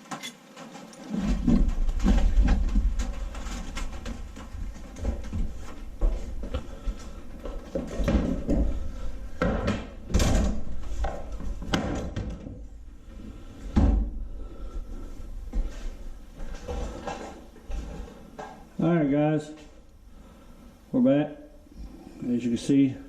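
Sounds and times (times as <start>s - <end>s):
tools and engine parts clattering: 0.0s - 4.5s.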